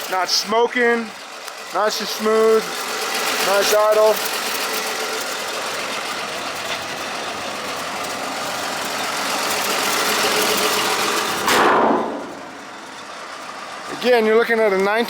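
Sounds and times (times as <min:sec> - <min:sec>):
truck engine idling: 0:00.0 - 0:15.0
loud rushing noise: 0:10.8 - 0:12.8.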